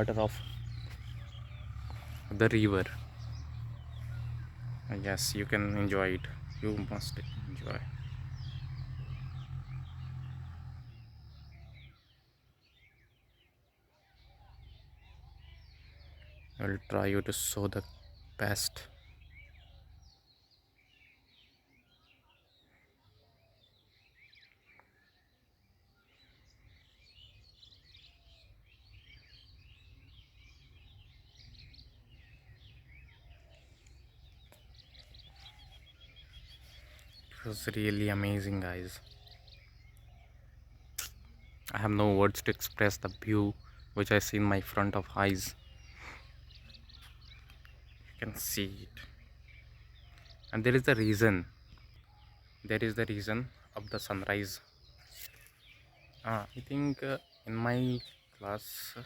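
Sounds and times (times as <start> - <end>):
low rumble: 0.0 - 11.9
low steady rumble: 0.0 - 12.0, 27.3 - 56.2
small birds chirping: 0.0 - 59.0.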